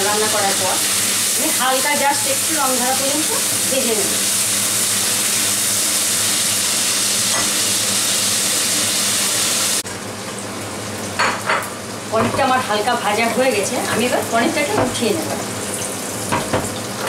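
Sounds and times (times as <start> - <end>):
cheese cubes sizzling in oil: 0.0 - 9.8.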